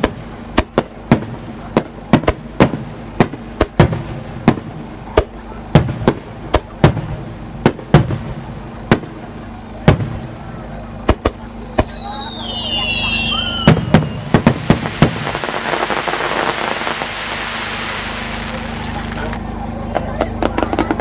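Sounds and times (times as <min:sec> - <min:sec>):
firework shells bursting: 0:11.0 - 0:21.0.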